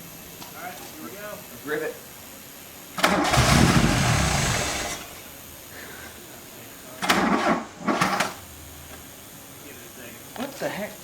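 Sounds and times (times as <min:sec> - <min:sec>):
car engine cranking by starter: 0:03.0 - 0:05.3, 0:07.0 - 0:08.4.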